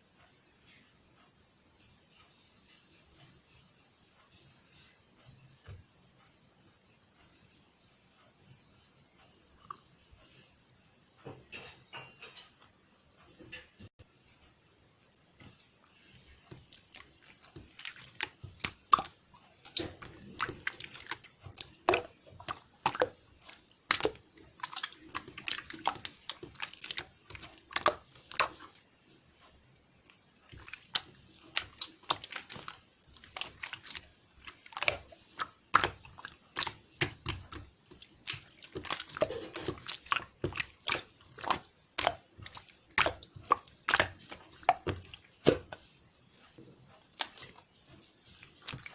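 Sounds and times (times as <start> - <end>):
crisp crunching and crackling: 16.2 - 28.8, 30.5 - 45.8.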